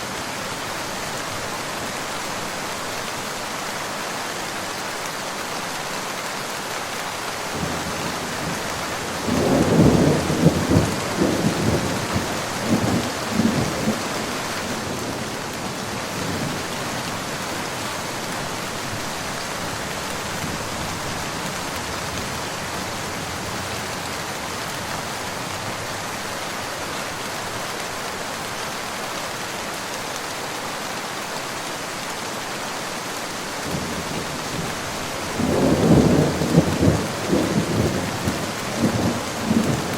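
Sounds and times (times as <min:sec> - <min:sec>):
steady rain: 0:00.0 - 0:39.9
thunder rumbling: 0:07.6 - 0:15.2, 0:33.7 - 0:39.9.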